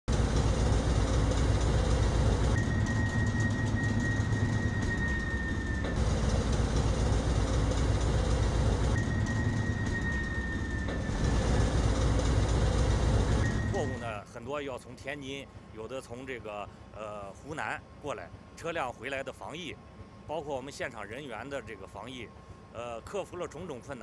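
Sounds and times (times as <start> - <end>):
freight train rumble: 0.1 - 14.3
high squeal: 0.6 - 14.4.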